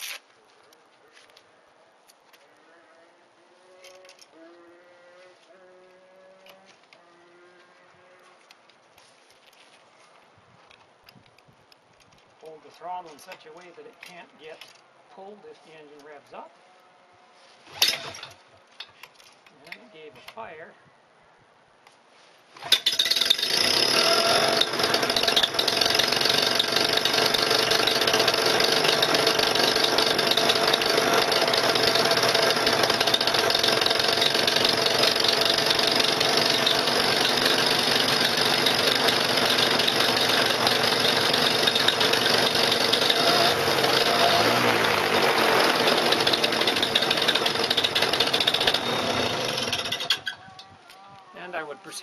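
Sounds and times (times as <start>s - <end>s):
two-stroke engine starting and idling: 17.8s - 18.4s, 22.6s - 50.4s.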